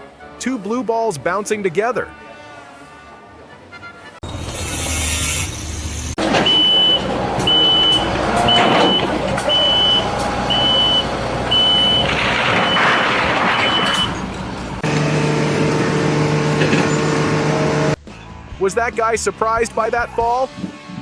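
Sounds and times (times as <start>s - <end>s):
heavy machine noise: 6.2s - 18.0s
reversing alarm beeps: 6.4s - 13.0s, 13.6s - 14.2s, 14.8s - 18.0s
steady droning hum: 14.8s - 18.0s.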